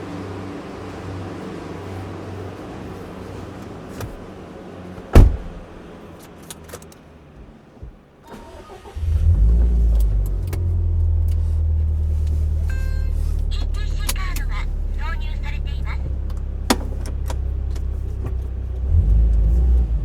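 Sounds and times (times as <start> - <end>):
car engine starting and idling: 0.0 - 20.0
loud thump: 5.1 - 5.8.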